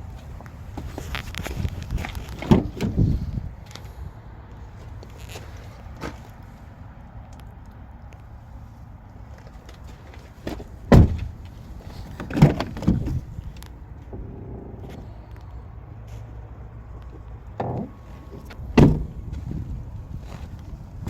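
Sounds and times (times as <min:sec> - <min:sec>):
truck doors shutting with thumps: 0:00.8 - 0:03.3, 0:10.4 - 0:15.1, 0:17.5 - 0:20.8.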